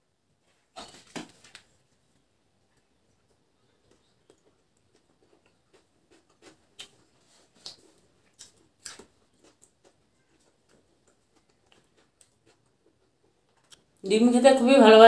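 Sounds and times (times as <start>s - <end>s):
soft wet chewing: 2.2s - 14.0s.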